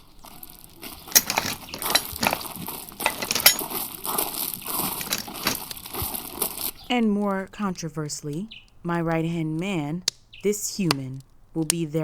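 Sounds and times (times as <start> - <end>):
clattering clinks and knocks: 1.1 - 3.8, 4.7 - 5.7
rustling noise: 1.1 - 3.8, 4.6 - 6.7.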